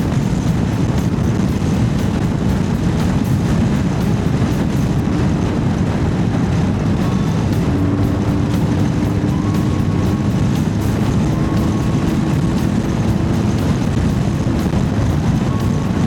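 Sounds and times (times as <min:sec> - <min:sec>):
motorcycle engine running: 0:00.0 - 0:16.0
riding wind rush: 0:00.0 - 0:16.0.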